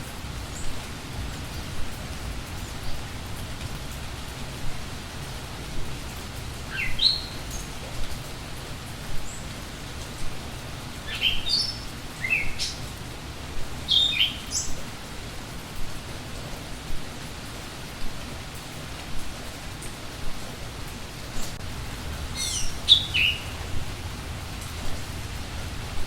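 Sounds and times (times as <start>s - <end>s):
rain falling: 0.0s - 26.0s
songbird chirping: 6.6s - 8.3s, 11.1s - 13.0s, 13.8s - 14.8s, 22.3s - 24.0s.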